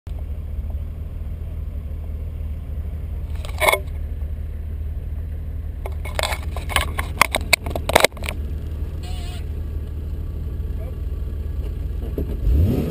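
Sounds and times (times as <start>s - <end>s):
car engine idling: 0.1s - 12.8s
short clatter: 3.3s - 4.0s, 5.8s - 8.4s.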